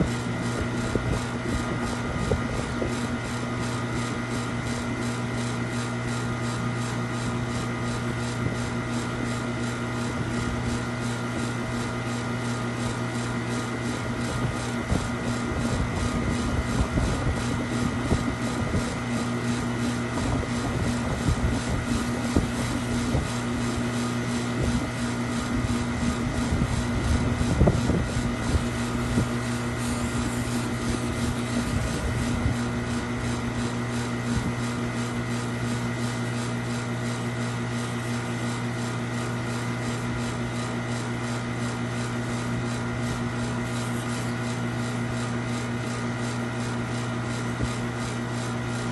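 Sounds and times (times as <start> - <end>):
mechanical hum: 0.0 - 48.9.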